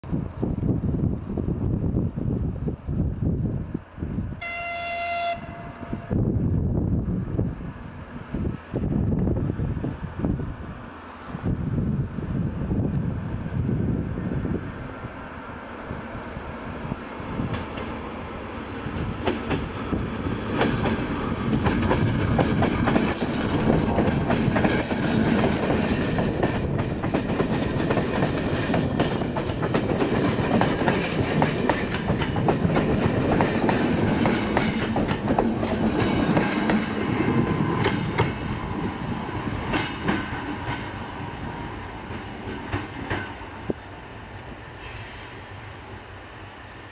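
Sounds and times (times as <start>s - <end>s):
train rumble: 0.0s - 46.9s
train wheels clattering over rails: 17.2s - 43.8s.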